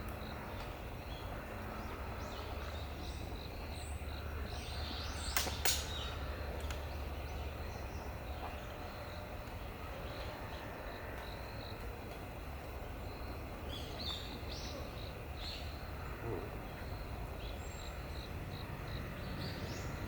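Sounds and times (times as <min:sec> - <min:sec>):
sharp clicks: 0:05.3 - 0:06.0.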